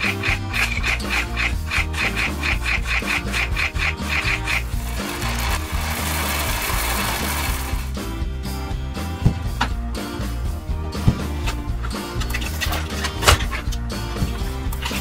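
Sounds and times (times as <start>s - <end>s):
rough rasping rubbing noise: 0.0s - 7.9s
background music with beat: 0.0s - 15.0s.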